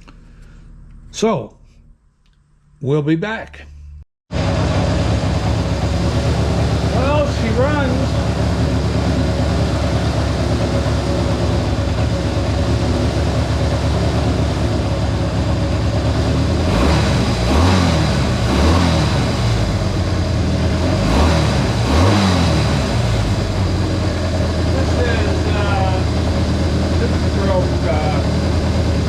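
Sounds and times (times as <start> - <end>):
motorcycle engine idling and revving: 3.8 - 29.0.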